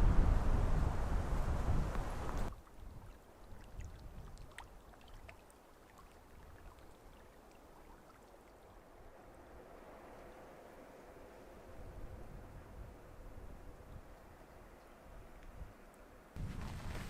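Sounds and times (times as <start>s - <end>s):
water lapping and trickling: 1.9s - 17.0s
light ticks: 14.2s - 16.0s.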